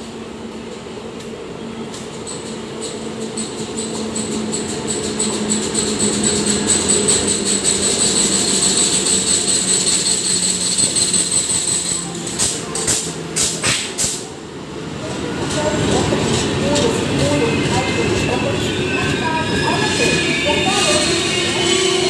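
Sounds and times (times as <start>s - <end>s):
train wheels clacking over rail joints: 2.0s - 14.3s
high-pitched wheel squeal: 3.4s - 12.2s, 17.2s - 22.0s.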